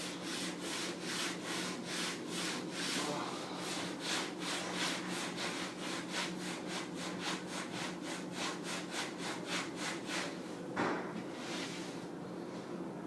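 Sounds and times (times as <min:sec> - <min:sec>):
sponge scrubbing: 0:00.0 - 0:10.4
knock: 0:10.8 - 0:11.1.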